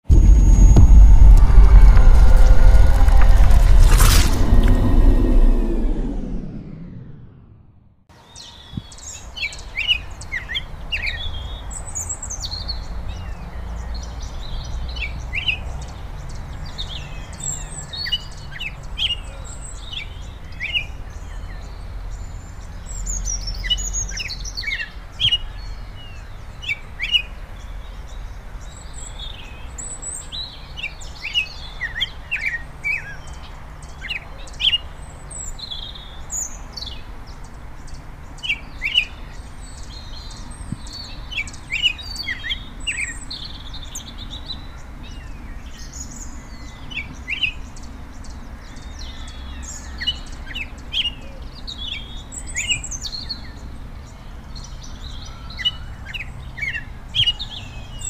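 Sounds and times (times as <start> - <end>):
low outdoor rumble: 0.1 - 7.9.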